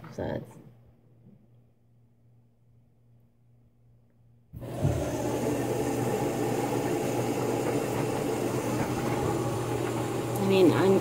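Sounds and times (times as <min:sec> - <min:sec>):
washing machine running: 0:04.5 - 0:11.0.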